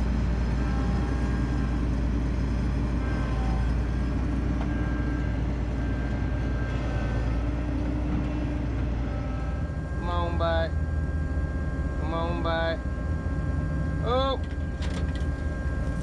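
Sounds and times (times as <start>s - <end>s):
farm machinery diesel engine: 0.0s - 16.0s.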